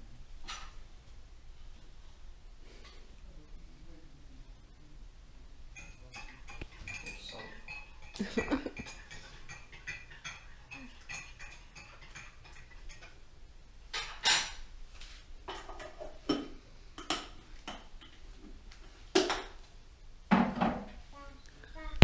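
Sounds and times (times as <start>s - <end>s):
dishes and cutlery clinking: 5.7s - 13.2s, 13.9s - 14.6s, 15.5s - 18.2s.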